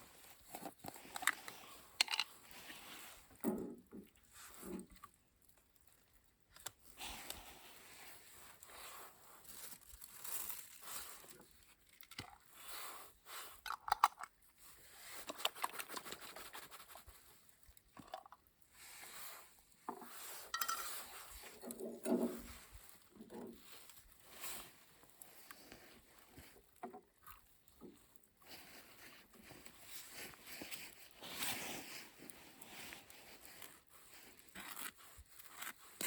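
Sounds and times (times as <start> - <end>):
cutlery and cookware clinking: 20.5 - 21.2.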